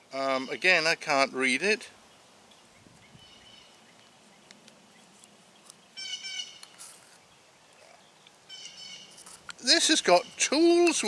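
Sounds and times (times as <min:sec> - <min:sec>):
bird chirping: 0:02.1 - 0:11.0.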